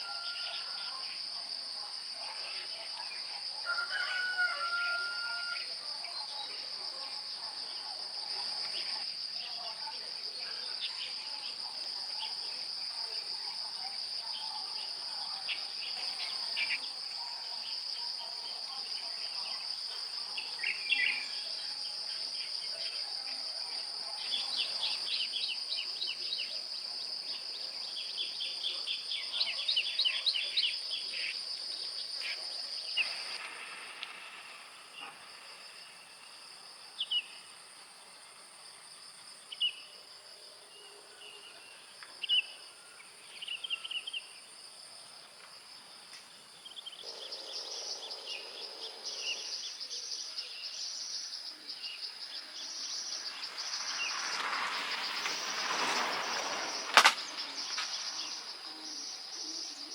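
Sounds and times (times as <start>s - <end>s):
insects trilling: 46.6s - 59.9s.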